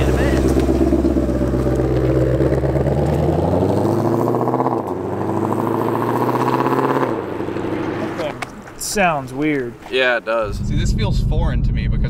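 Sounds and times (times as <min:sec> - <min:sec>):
car engine accelerating hard: 0:00.0 - 0:08.6.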